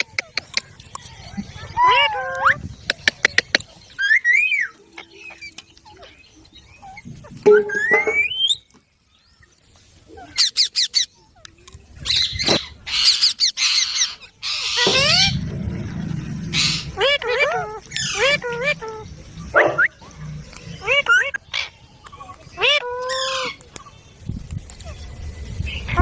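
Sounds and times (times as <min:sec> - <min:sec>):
parakeets calling and squawking: 0:00.0 - 0:08.6, 0:10.1 - 0:26.0
harsh screeches: 0:14.5 - 0:19.2.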